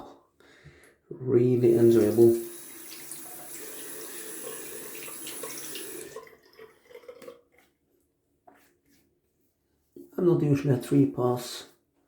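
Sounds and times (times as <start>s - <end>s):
water dripping: 1.6s - 7.7s.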